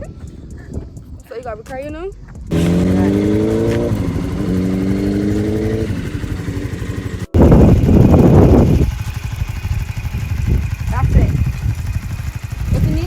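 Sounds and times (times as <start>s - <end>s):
motorcycle engine running: 2.5s - 13.0s.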